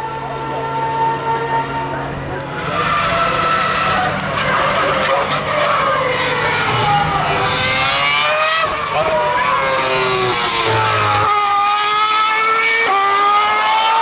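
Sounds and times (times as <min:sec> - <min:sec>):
racing car engines at high revs: 0:00.0 - 0:14.0.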